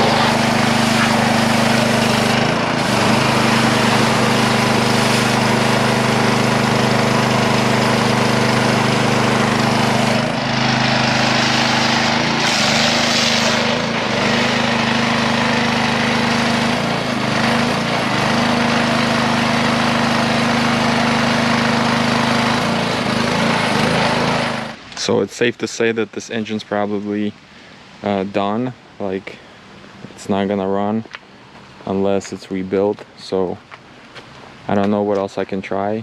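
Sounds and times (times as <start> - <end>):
small engine running: 0.0 - 24.8.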